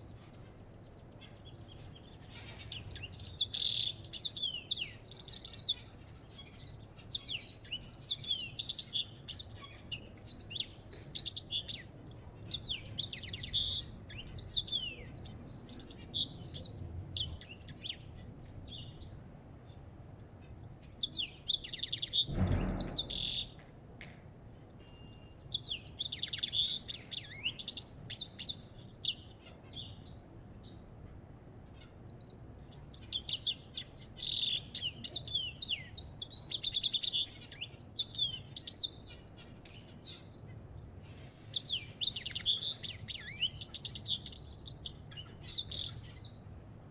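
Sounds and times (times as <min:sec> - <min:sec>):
goldfinch singing: 0:00.0 - 0:19.2, 0:20.2 - 0:23.6, 0:24.5 - 0:46.5
low bump: 0:22.2 - 0:23.6.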